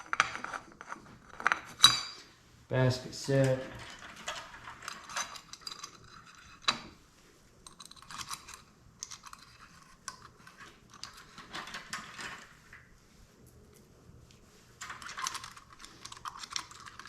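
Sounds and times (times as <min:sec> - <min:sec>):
metal parts clicking and clinking: 0:03.3 - 0:06.9, 0:07.6 - 0:12.5, 0:14.8 - 0:17.0.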